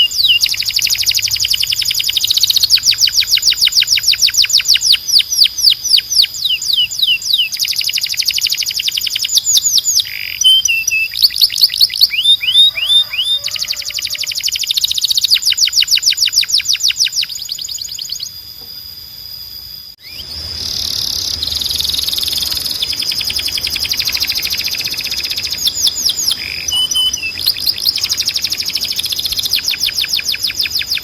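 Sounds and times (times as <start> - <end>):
canary singing: 0.0 - 18.4, 20.0 - 31.0
steady high tone: 19.4 - 31.0.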